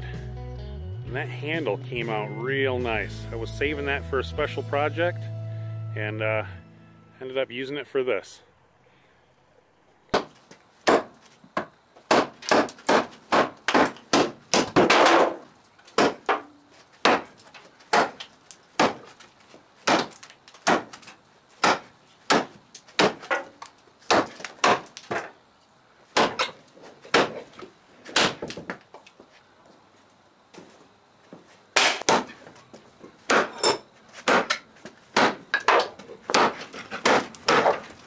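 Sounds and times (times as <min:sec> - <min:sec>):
knife chopping into wood: 0:10.1 - 0:19.2, 0:19.8 - 0:23.4, 0:24.1 - 0:25.3, 0:26.2 - 0:27.5, 0:28.1 - 0:28.8, 0:31.8 - 0:32.5, 0:33.3 - 0:37.9.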